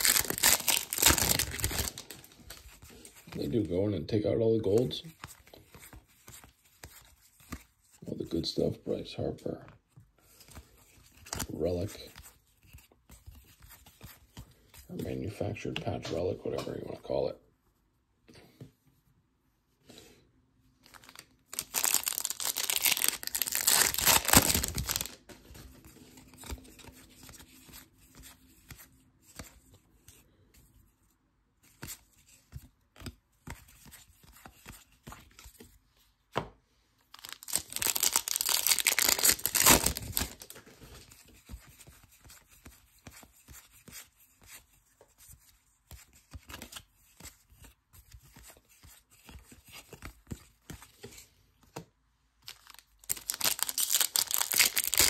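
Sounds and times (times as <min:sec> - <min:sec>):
foil wrapper tearing and crinkling: 0:00.0 - 0:02.6, 0:21.0 - 0:25.2, 0:37.2 - 0:40.5, 0:52.5 - 0:55.0
cards being shuffled: 0:00.0 - 0:03.6, 0:04.6 - 0:08.1, 0:09.9 - 0:16.9, 0:20.8 - 0:30.2, 0:31.6 - 0:36.4, 0:37.1 - 0:51.8, 0:52.4 - 0:55.0.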